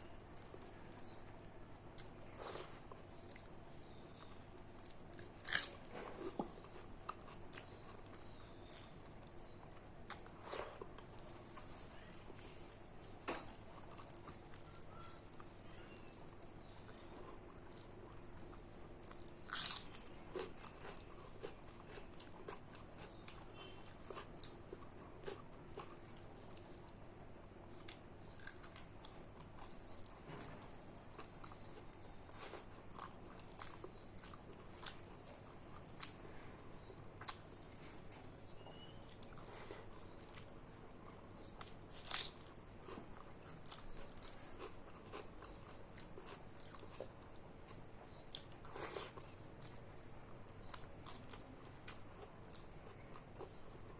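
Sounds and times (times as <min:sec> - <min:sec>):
chewing and mouth smacks: 0:36.8 - 0:49.9, 0:50.6 - 0:53.7.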